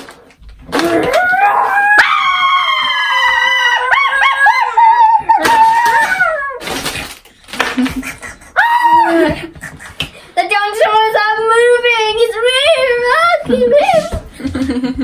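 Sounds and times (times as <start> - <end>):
dog howling: 0.6 - 6.8.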